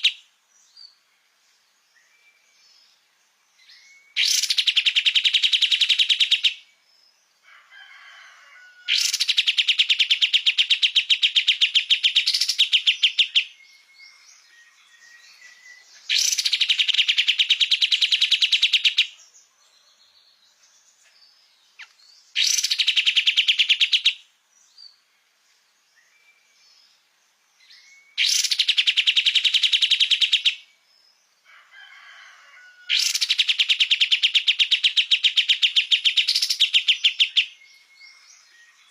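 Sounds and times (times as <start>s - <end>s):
bird trilling: 4.2s - 6.6s, 8.9s - 13.5s, 15.4s - 19.1s, 21.8s - 24.2s, 28.2s - 30.6s, 32.9s - 37.6s.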